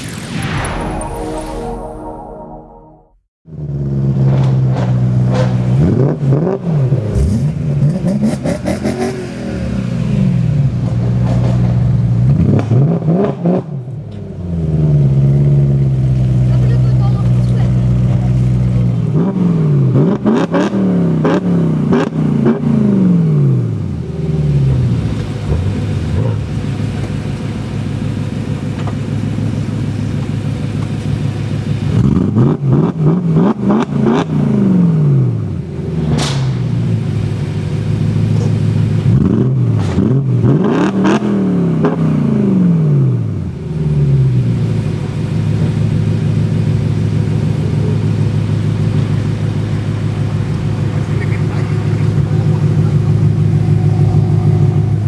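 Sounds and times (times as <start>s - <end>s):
car engine idling and revving: 3.5s - 55.0s
exhaust cracks: 47.6s - 55.0s.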